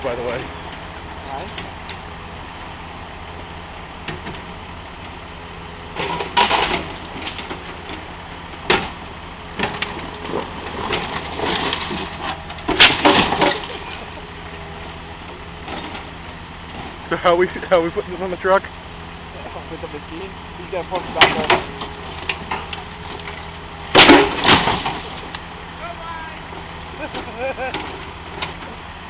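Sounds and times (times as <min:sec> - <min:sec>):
excavator diesel engine running: 0:00.0 - 0:29.0
metal crunches and clangs: 0:09.6 - 0:14.1, 0:20.9 - 0:25.4.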